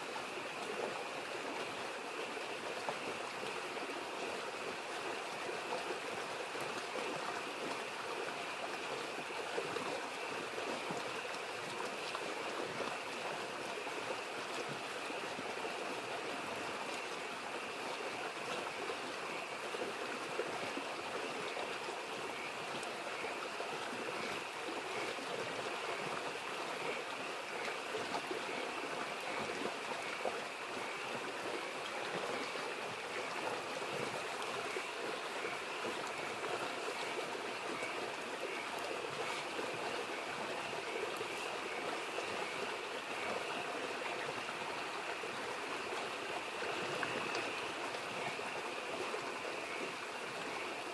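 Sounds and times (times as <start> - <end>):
faint campfire crackles: 0.0 - 50.9
small stream babbling: 0.0 - 50.9
frogs calling: 21.1 - 50.9.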